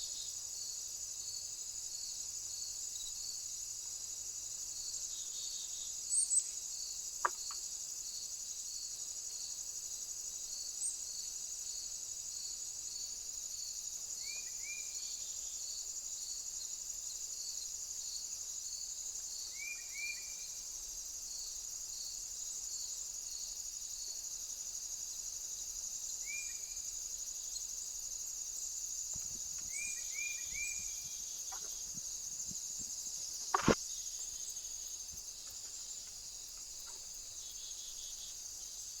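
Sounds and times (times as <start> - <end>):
crickets chirping: 0.0 - 39.0
small birds chirping: 29.1 - 38.5.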